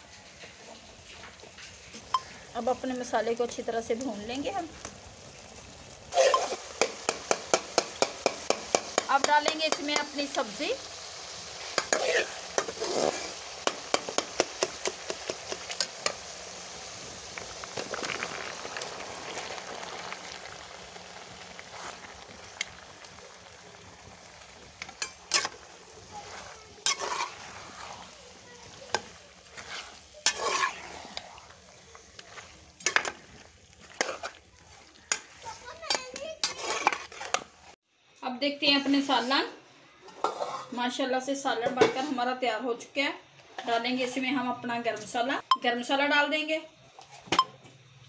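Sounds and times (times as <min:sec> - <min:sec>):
masala sizzling in a pot: 0:00.0 - 0:48.0
spoon scraping vegetables in pot: 0:06.1 - 0:10.2, 0:11.7 - 0:16.2, 0:24.8 - 0:37.7, 0:40.1 - 0:40.8.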